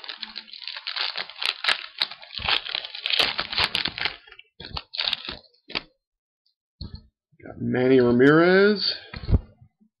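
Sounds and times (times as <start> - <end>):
wrapper torn and crinkled: 0.0 - 5.9.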